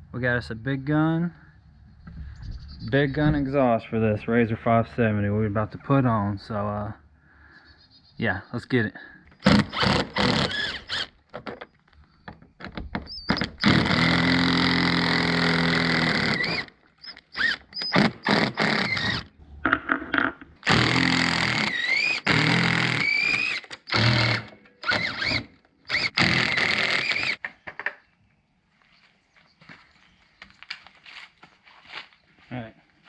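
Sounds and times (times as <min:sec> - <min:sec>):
power tool rattling: 0:09.4 - 0:11.6, 0:12.7 - 0:19.3, 0:20.6 - 0:27.4.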